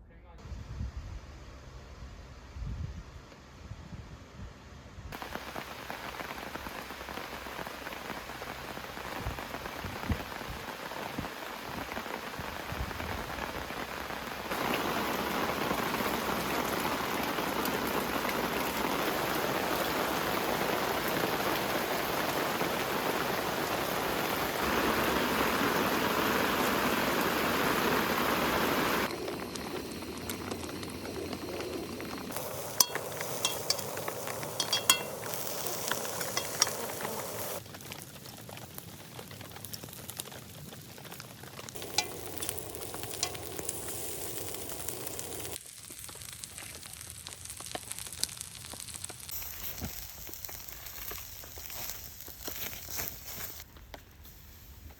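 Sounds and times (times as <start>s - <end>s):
steady rain falling: 5.1s - 54.9s.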